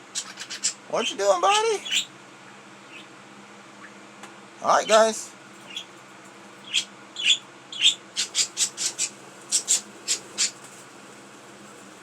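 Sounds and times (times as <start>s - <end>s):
budgerigars chirping: 0.2s - 2.1s, 2.9s - 3.1s, 5.7s - 5.9s, 6.6s - 10.6s.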